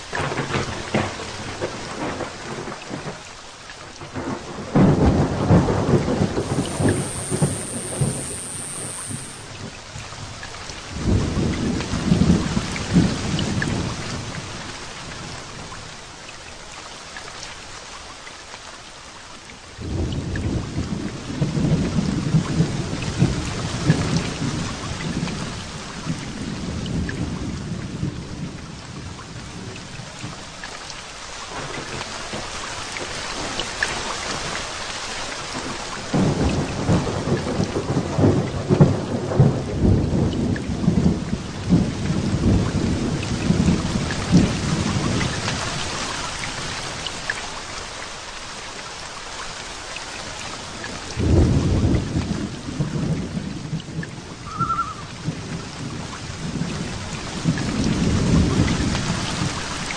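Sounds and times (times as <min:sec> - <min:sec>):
heavy rain falling: 0:00.0 - 0:59.9
thunder rumbling: 0:04.1 - 0:09.8, 0:51.1 - 0:59.9.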